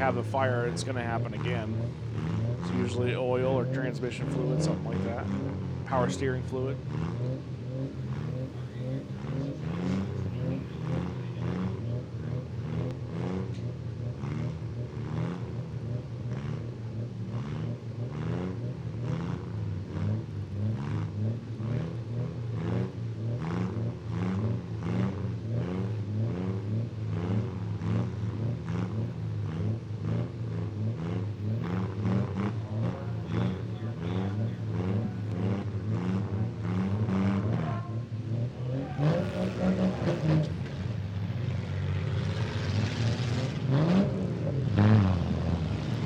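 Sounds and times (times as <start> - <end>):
car engines revving: 0.0 - 46.0.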